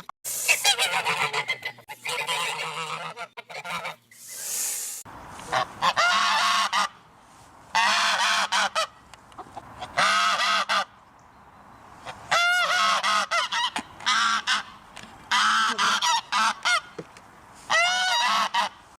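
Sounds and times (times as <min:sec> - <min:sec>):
geese honking: 0:00.4 - 0:04.1, 0:05.4 - 0:07.0, 0:07.7 - 0:11.0, 0:12.0 - 0:17.0, 0:17.7 - 0:18.8.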